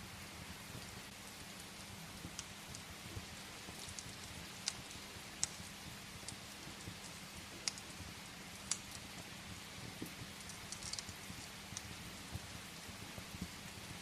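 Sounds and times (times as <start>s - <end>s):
rain hissing: 0.0s - 14.0s
wood fire crackling: 0.0s - 14.0s.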